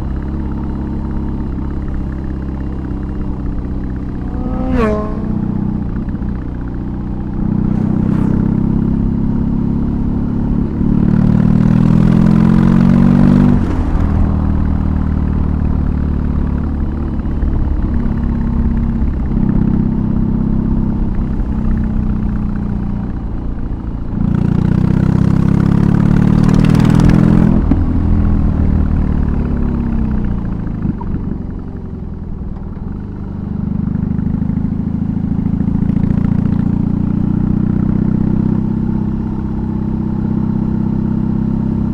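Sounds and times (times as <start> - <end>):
motorcycle engine revving: 2.2 - 16.9
rush of wind: 4.1 - 10.8.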